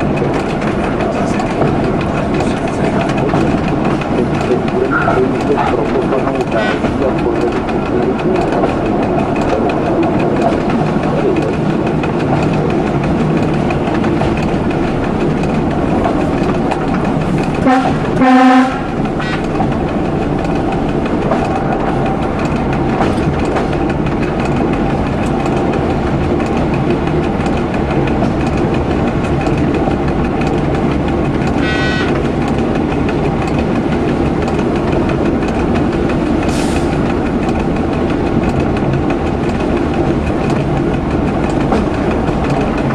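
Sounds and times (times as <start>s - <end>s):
train wheels rumbling on rails: 0.0s - 42.9s
train horn blast: 17.6s - 19.5s, 31.6s - 32.2s.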